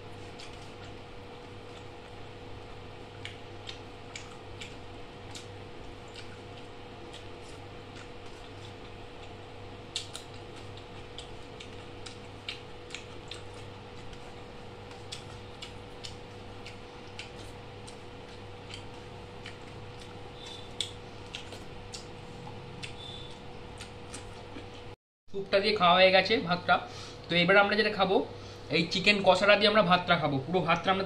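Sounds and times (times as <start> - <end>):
person chewing food: 0.0 - 25.0
steady low hum: 0.0 - 31.0
mouth clicks and smacks: 3.1 - 24.9.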